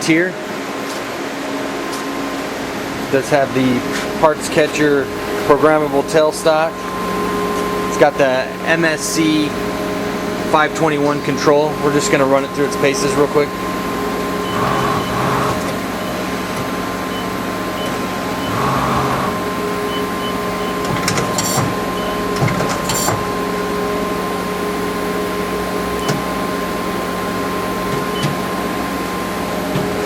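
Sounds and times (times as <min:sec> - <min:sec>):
machine hum: 0:00.0 - 0:30.0
mechanical clicks and clunks: 0:20.8 - 0:21.8.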